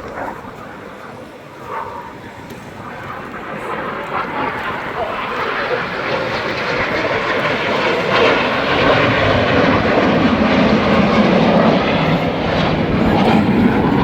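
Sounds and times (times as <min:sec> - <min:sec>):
jets flying past: 0:00.0 - 0:14.0.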